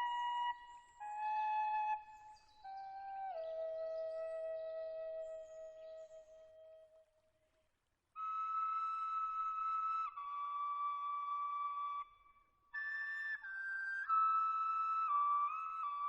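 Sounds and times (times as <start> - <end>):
slow flute melody: 0.0 - 7.0, 8.2 - 16.0.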